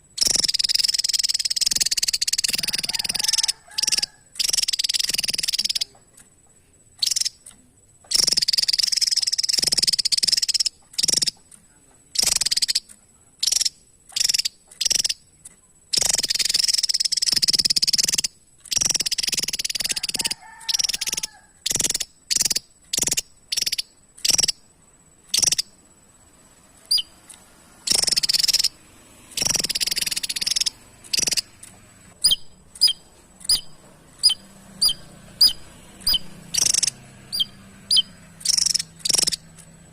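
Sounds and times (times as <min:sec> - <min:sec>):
bird singing buzzy song: 0:00.0 - 0:39.9
sharp bird notes: 0:27.9 - 0:28.8, 0:29.4 - 0:31.6, 0:32.2 - 0:39.7.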